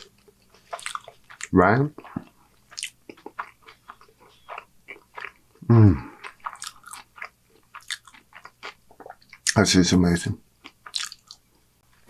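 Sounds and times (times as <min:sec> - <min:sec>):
wet chewing mouth smacks: 0:00.0 - 0:05.4, 0:06.2 - 0:09.6, 0:10.6 - 0:11.4.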